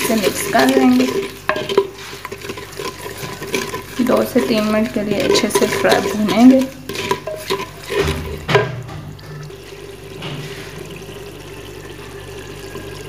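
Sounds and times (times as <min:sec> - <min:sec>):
spices sizzling in hot oil: 0:00.0 - 0:08.6
spoon knocking against pot: 0:00.2 - 0:09.2.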